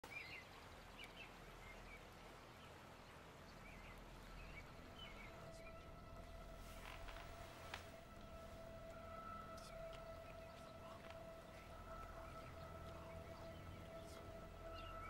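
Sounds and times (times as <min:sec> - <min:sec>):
faint steady tone: 0:00.1 - 0:15.0.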